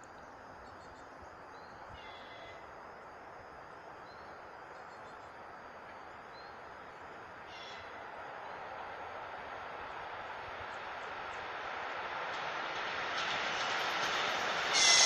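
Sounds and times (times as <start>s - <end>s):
distant train rumble: 0.0s - 15.0s.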